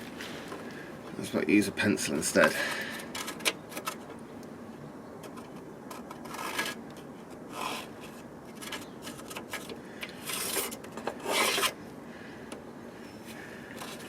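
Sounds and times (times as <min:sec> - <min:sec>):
short rasping scrapes: 0:10.2 - 0:11.8.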